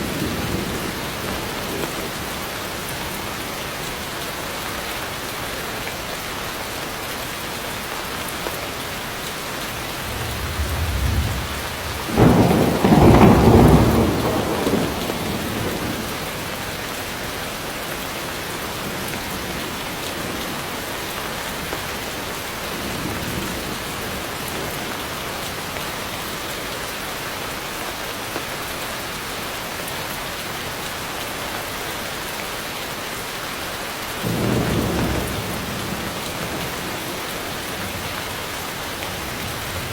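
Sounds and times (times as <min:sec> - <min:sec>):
heavy rain falling: 0:00.0 - 0:39.9
thunder rumbling: 0:09.6 - 0:16.6, 0:34.2 - 0:37.2.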